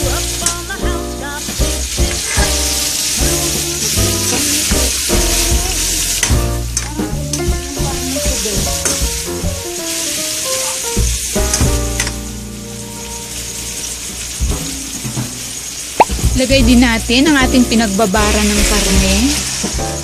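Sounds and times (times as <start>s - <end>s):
background music: 0.0s - 20.0s
pork sizzling in oil: 0.0s - 20.0s.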